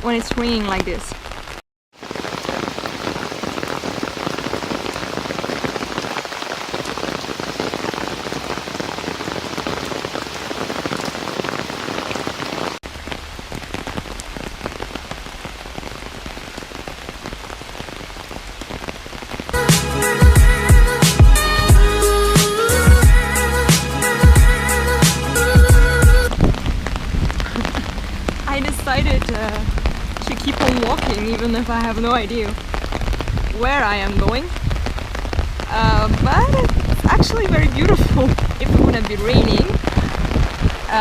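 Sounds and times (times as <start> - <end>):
heavy rain falling: 0.0 - 41.0
background music: 19.6 - 26.3.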